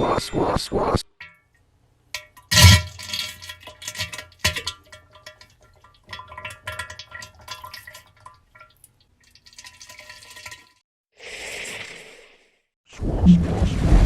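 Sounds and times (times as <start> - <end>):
sharp clicks and drips: 1.2 - 10.8.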